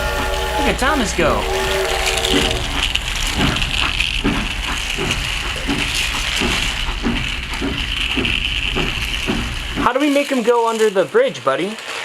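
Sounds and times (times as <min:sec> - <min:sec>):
regular clicking: 0:00.0 - 0:12.0
toy train motor whine: 0:00.0 - 0:12.0.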